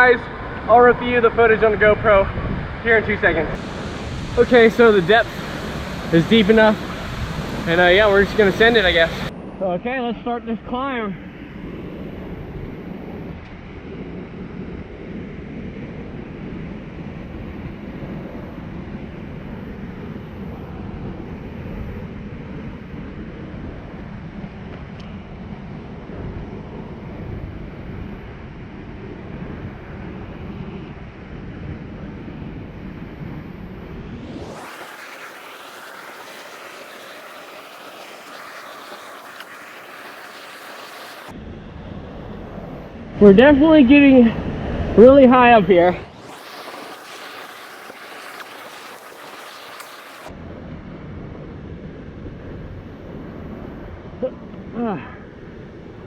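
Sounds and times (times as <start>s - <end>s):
waterfall rushing: 3.6s - 9.3s, 34.4s - 41.3s, 46.1s - 50.3s.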